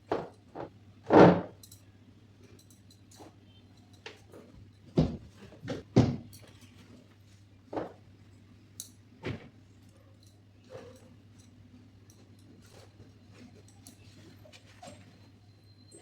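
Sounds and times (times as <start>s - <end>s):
knocks of household things handled: 4.9s - 6.3s.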